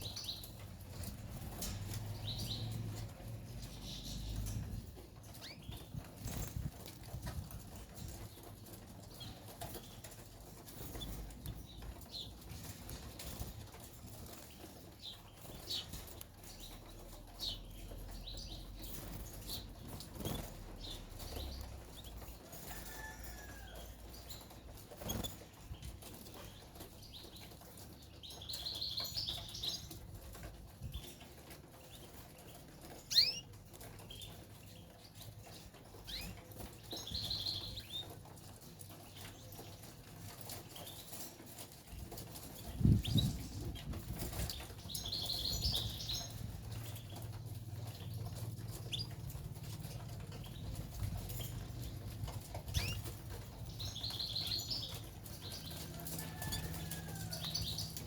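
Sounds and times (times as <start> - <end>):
birds fluttering: 0.0 - 58.0
canary chirps: 5.3 - 7.0, 14.2 - 38.2, 42.4 - 58.0.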